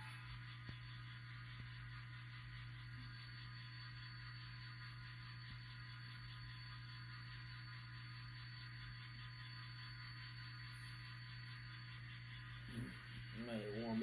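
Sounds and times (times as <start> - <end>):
model locomotive engine hum: 0.0 - 14.0.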